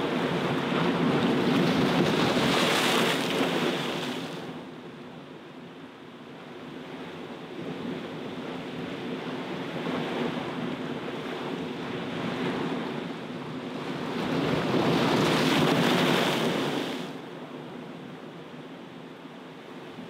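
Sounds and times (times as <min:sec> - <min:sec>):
sea waves crashing on seawall: 0:00.0 - 0:04.6, 0:09.7 - 0:17.3.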